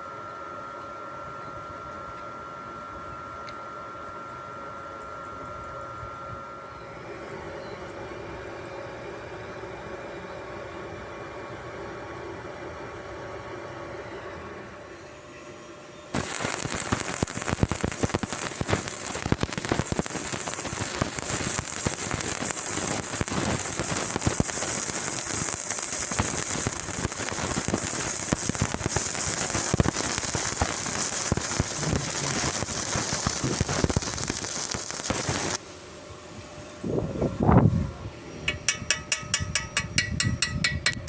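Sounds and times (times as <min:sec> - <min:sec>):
welding arc crackling and sizzling: 0:16.1 - 0:35.6, 0:38.5 - 0:41.0.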